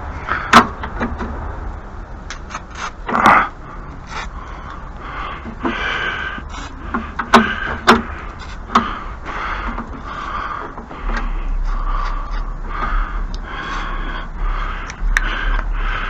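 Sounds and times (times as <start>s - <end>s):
heavy breathing: 3.4s - 16.0s.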